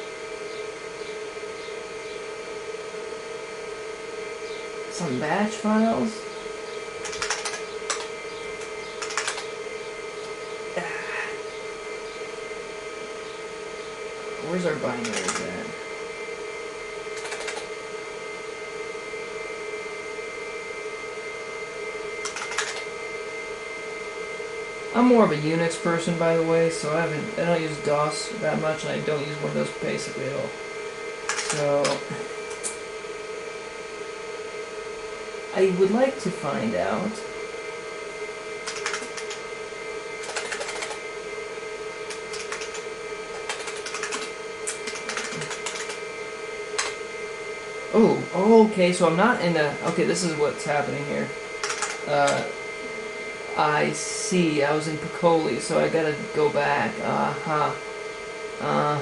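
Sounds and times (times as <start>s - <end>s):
computer fan and hard drive whirring: 0.0s - 59.0s
rapid hard drive clicking: 4.9s - 12.5s, 13.2s - 18.6s, 21.9s - 23.4s, 31.1s - 32.9s, 38.5s - 47.2s, 48.7s - 52.6s
clacky keyboard keystrokes: 7.0s - 8.1s, 9.0s - 9.5s, 15.0s - 15.4s, 17.2s - 17.6s, 22.2s - 22.9s, 31.3s - 32.0s, 38.7s - 39.4s, 40.2s - 41.0s, 42.1s - 42.8s, 43.4s - 46.0s, 51.6s - 52.0s.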